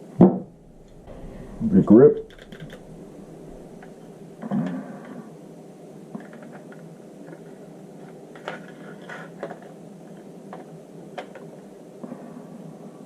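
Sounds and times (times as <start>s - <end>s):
steady low hiss: 0.3s - 5.1s.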